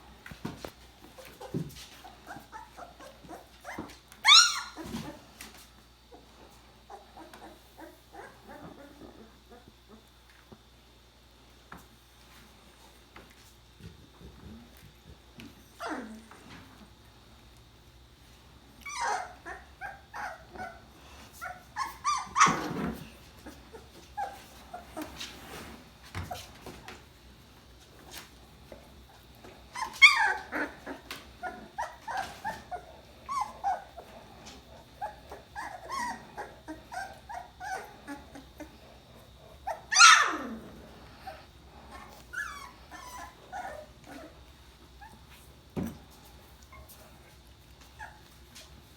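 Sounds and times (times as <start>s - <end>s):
puppies whimpering and squeaking: 1.1s - 5.6s, 6.9s - 10.1s, 15.6s - 16.4s, 18.8s - 27.1s, 29.1s - 45.4s, 46.6s - 47.2s, 47.8s - 48.9s.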